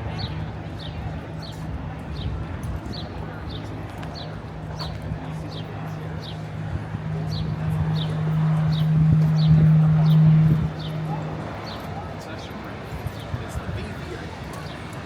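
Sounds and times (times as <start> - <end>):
street noise: 0.0 - 15.0
low hum: 5.1 - 11.7.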